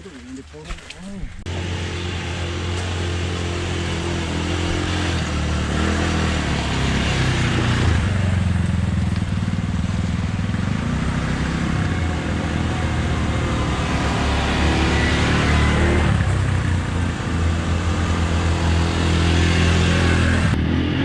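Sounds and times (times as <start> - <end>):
vehicle engine running: 0.0 - 20.6.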